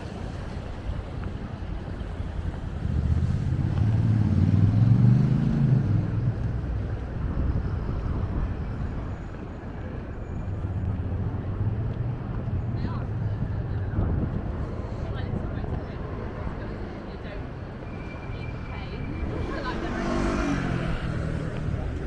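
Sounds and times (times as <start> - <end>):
city noise: 0.0 - 22.0
vehicle passing close by: 2.8 - 6.6, 19.1 - 22.0.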